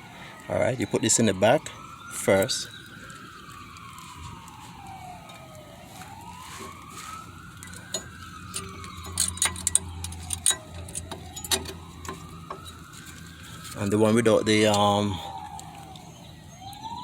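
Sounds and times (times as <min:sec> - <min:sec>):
siren wailing: 0:00.0 - 0:17.0
metallic clicks and clinks: 0:07.6 - 0:12.8.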